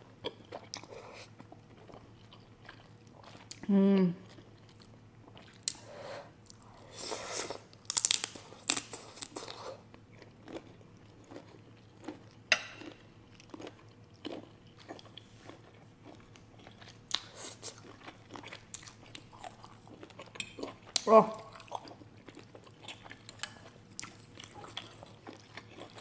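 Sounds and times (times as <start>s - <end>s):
person chewing prawn: 0.2s - 26.0s.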